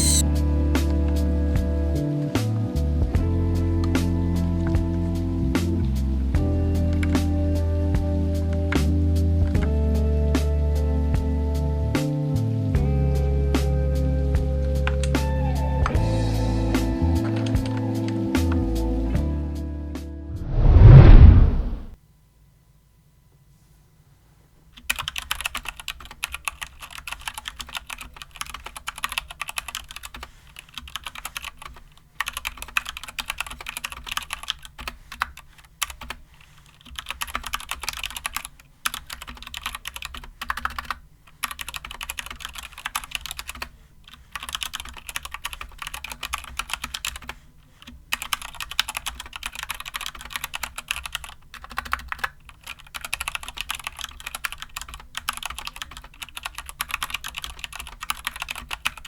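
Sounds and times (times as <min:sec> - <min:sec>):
mechanical keyboard keystrokes clacking: 0:24.8 - 0:30.2, 0:36.8 - 0:43.7, 0:44.4 - 0:59.0.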